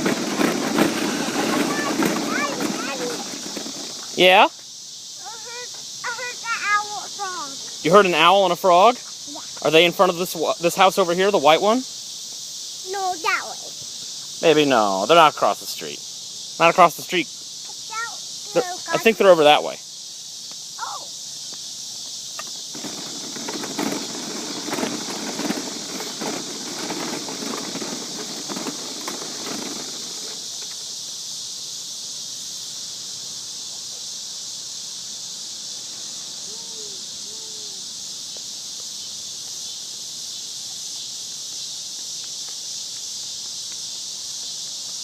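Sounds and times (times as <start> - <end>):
footsteps: 0.0 - 4.3, 21.4 - 30.8
rustling: 0.0 - 4.3, 22.4 - 31.0
high-pitched insect chorus: 0.0 - 45.0.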